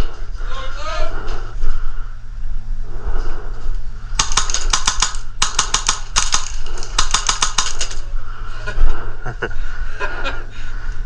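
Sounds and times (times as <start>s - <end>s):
airsoft gun shots: 4.2s - 8.1s.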